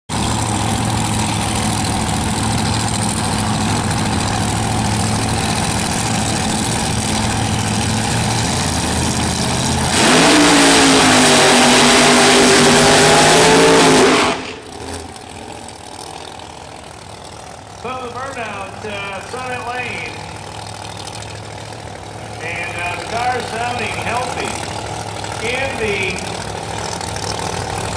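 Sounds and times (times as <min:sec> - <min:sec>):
car engine idling and revving: 0:00.1 - 0:27.9
tyres screeching in a burnout: 0:00.2 - 0:16.4
commentator talking: 0:17.8 - 0:20.3, 0:22.4 - 0:24.7, 0:25.3 - 0:26.4.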